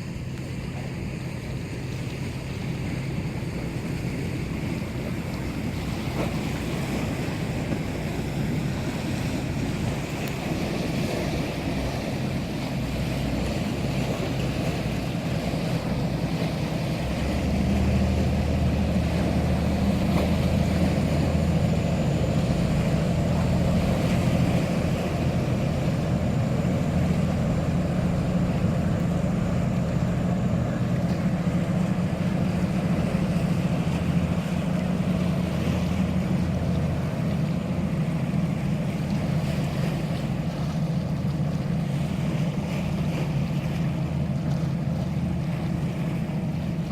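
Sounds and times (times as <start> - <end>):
boat engine droning: 0.0 - 46.9
sea waves: 0.0 - 46.9.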